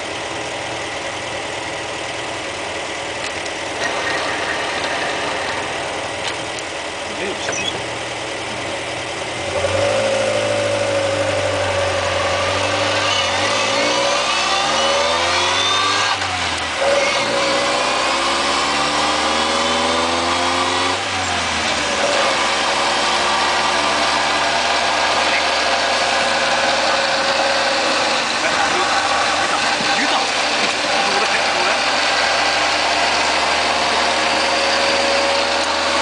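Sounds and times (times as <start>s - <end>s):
vehicle engine running: 0.0s - 36.0s
transmission whine: 3.1s - 17.4s.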